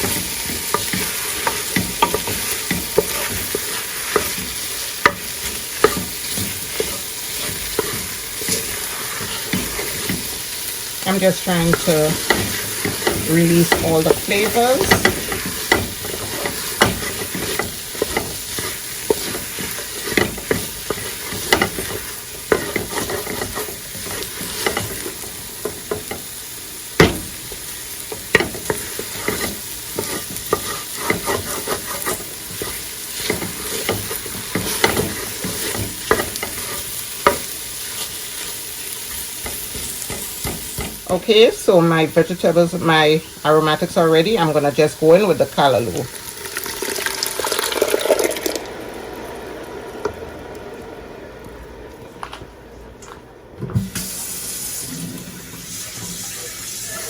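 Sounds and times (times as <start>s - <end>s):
vegetables sizzling in a pot: 0.0s - 57.0s.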